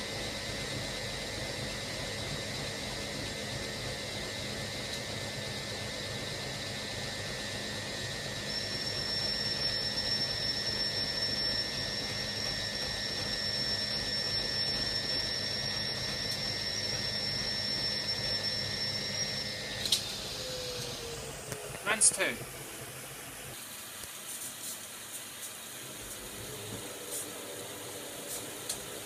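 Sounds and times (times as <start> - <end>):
washing machine drum spinning: 0.4 - 21.4
higher whine: 6.8 - 23.6, 25.8 - 29.0.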